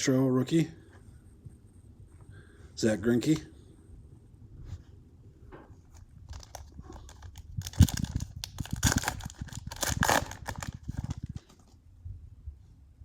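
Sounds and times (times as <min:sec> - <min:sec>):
cards and packaging crinkling: 0:05.9 - 0:11.8.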